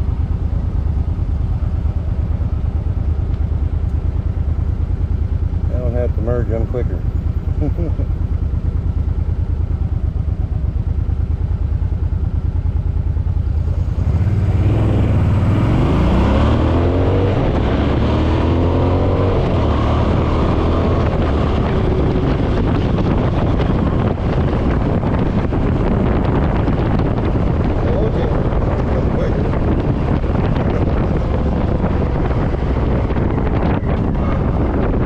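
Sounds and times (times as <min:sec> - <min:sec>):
motorcycle engine accelerating: 0:00.0 - 0:35.0
wind rush: 0:13.4 - 0:35.0.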